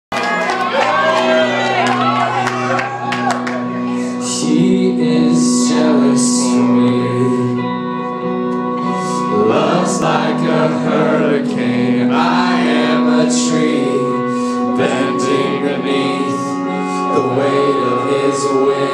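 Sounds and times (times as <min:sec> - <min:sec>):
sustained held chords: 0:00.2 - 0:18.9
man singing worship song: 0:04.2 - 0:07.8, 0:09.0 - 0:18.9.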